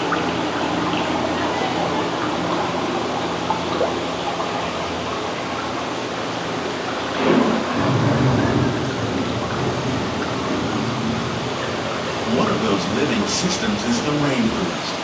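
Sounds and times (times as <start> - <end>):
steady rain: 0.0 - 15.0
thunder rumbling: 7.0 - 15.0.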